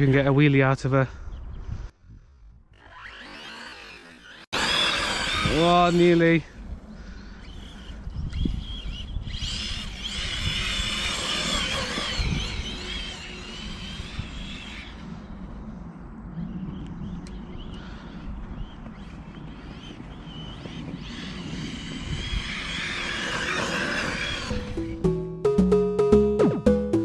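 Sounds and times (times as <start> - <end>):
electric motor whining: 2.7 - 6.2, 7.3 - 15.4, 19.7 - 25.2.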